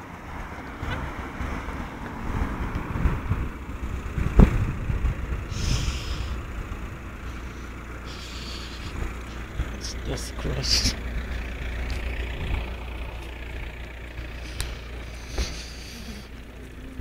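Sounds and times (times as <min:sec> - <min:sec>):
road traffic rumble: 0:00.0 - 0:17.0
short hisses: 0:05.5 - 0:06.4, 0:07.3 - 0:09.5, 0:14.3 - 0:16.4.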